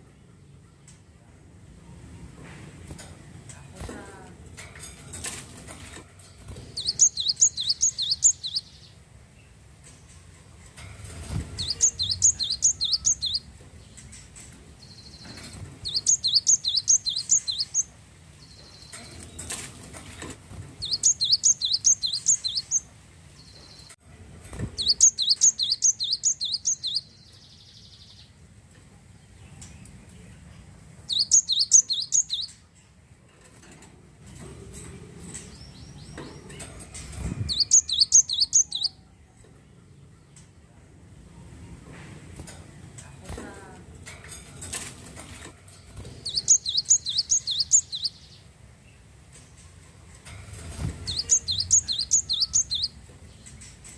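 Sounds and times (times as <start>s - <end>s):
bird singing rapid high notes: 6.8s - 8.9s, 11.6s - 13.5s, 15.8s - 19.2s, 20.8s - 22.9s, 24.8s - 28.2s, 31.1s - 32.6s, 37.5s - 39.0s, 46.2s - 48.4s, 51.0s - 53.0s.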